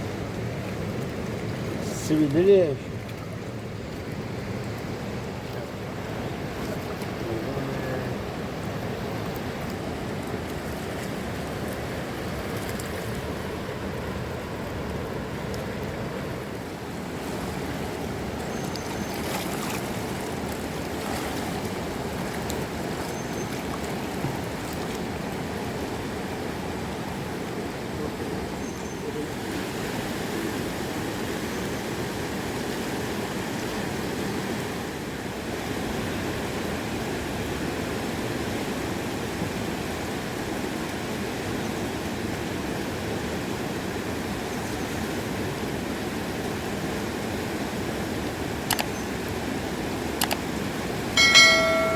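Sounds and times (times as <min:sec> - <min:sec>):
river rushing: 0:00.0 - 0:51.9.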